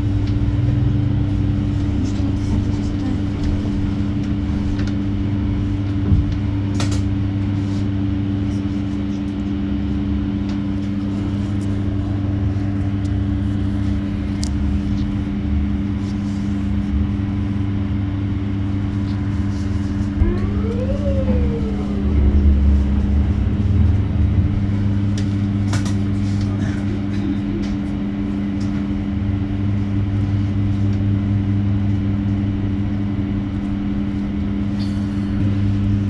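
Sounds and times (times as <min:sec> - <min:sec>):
bus cabin rumble: 0:00.0 - 0:36.0
two-note electrical hum: 0:20.2 - 0:26.0.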